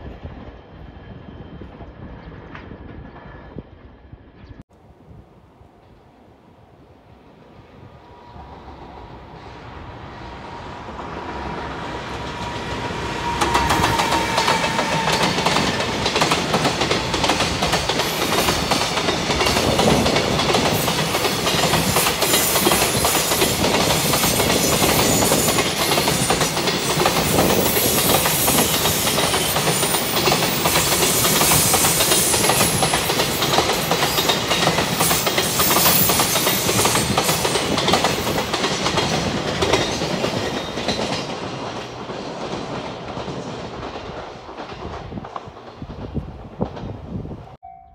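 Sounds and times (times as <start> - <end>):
freight train wheels clattering: 11.0 - 47.0.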